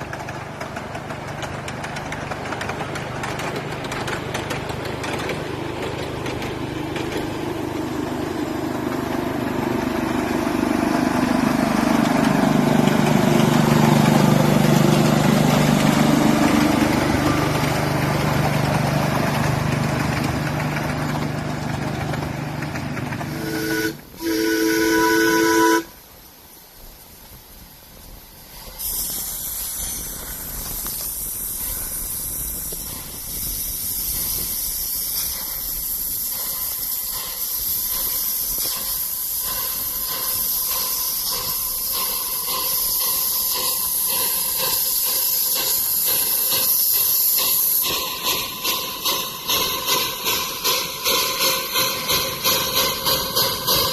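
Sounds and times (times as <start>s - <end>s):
miniature locomotive running: 0.0s - 26.0s, 26.8s - 53.9s
steam hissing: 0.0s - 53.9s
locomotive horn toot: 23.3s - 26.0s.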